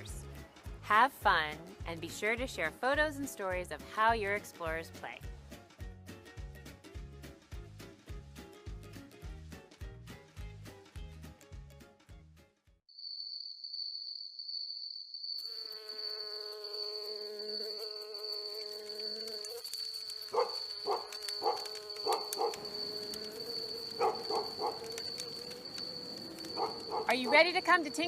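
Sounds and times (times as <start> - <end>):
high-pitched insect tone: 12.9 - 28.0
low insect buzz: 13.0 - 28.0
short repeated calls: 20.0 - 28.0.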